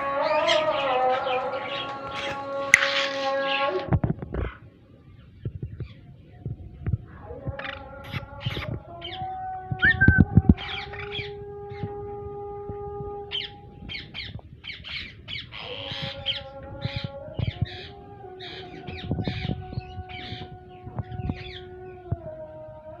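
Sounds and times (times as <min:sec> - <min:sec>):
parakeets squawking: 0:00.2 - 0:03.7, 0:07.5 - 0:11.8, 0:13.3 - 0:21.7.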